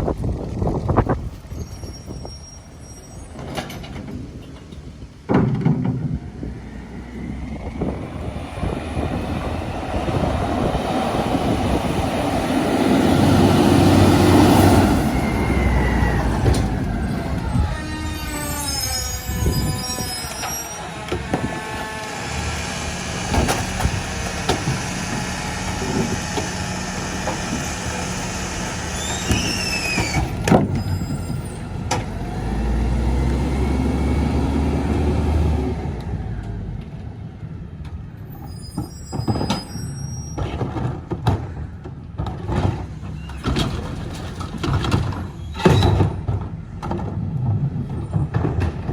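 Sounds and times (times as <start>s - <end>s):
short falling squeal with clicks: 1.5s - 3.8s, 14.6s - 22.8s, 27.5s - 31.7s, 38.2s - 40.8s, 43.1s - 43.6s, 45.1s - 46.1s
diesel engine revving: 6.0s - 38.8s
long wavering squeal: 6.5s - 31.7s.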